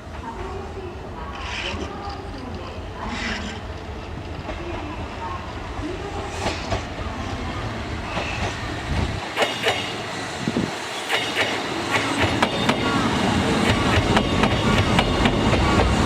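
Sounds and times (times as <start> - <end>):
electric train running: 5.8 - 16.0.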